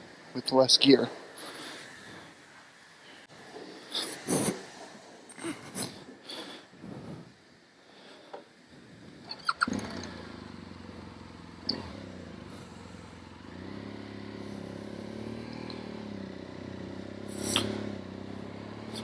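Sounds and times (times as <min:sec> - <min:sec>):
motorcycle engine running: 0:09.5 - 0:19.0.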